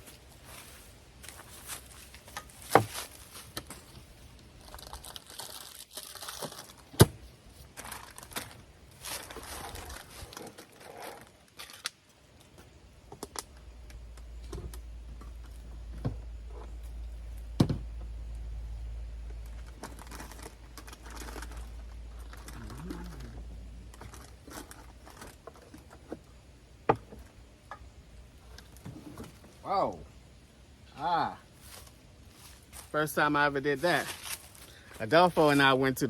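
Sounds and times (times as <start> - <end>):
low steady hum: 0.0 - 36.0
plastic packaging crinkling: 1.4 - 7.0, 7.6 - 12.0, 19.4 - 26.0.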